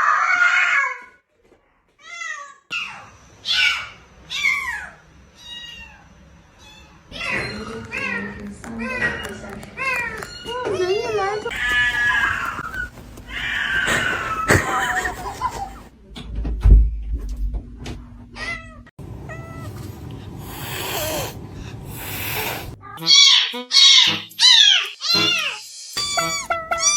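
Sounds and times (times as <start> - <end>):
cat meowing: 11.5 - 14.6, 18.4 - 26.9.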